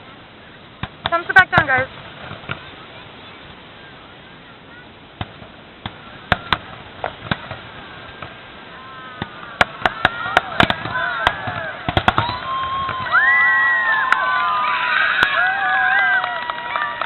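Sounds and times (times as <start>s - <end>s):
fireworks bangs: 0.8s - 3.5s, 4.8s - 17.0s
high shouting voices: 7.8s - 17.0s.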